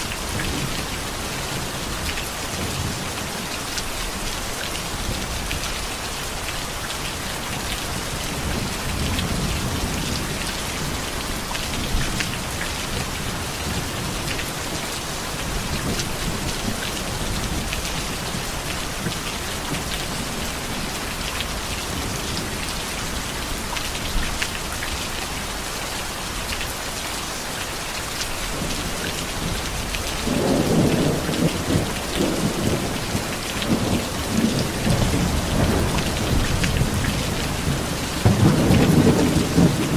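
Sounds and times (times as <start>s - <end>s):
heavy rain: 0.0s - 39.9s
rolling thunder: 28.6s - 39.9s.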